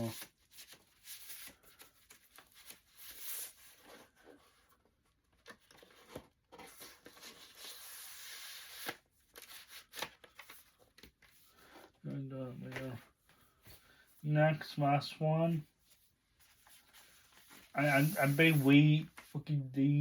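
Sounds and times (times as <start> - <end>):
rustling and sliding of sleeves: 15.5 - 19.4.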